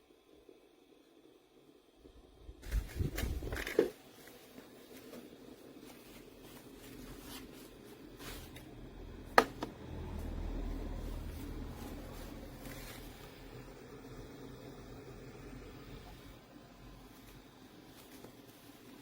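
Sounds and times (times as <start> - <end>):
handling knocks and rustles: 2.6 - 9.8
faint low rumble: 5.8 - 18.6.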